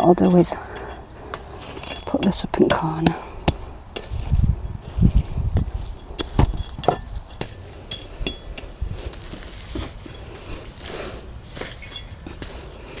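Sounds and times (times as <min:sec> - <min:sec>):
dull thump: 0:05.5 - 0:07.6.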